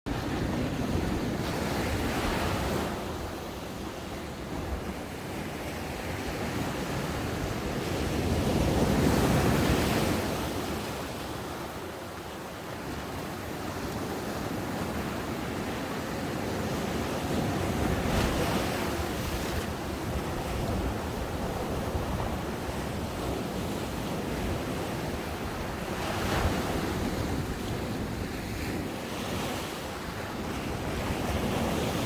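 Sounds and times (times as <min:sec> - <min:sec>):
ocean waves breaking on a beach: 0:00.1 - 0:32.0
wind noise on microphone: 0:16.4 - 0:32.0.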